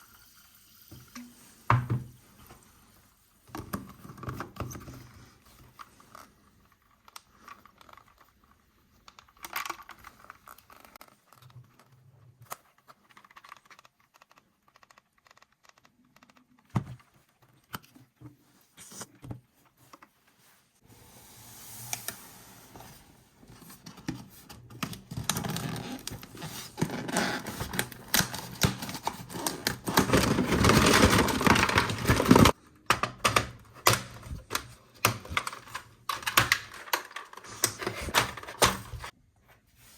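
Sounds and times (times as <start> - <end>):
plastic toy parts clicking: 9.0 - 11.9, 12.5 - 16.7
plastic packaging crackling: 25.0 - 32.6.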